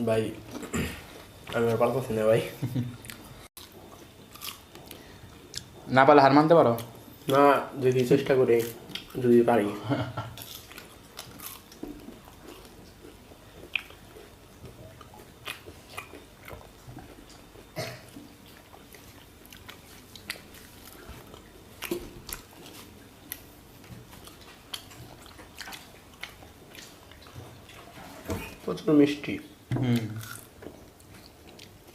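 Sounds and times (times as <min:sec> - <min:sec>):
sweet being bitten and chewed: 0:03.0 - 0:05.9, 0:10.4 - 0:28.0, 0:29.9 - 0:31.9.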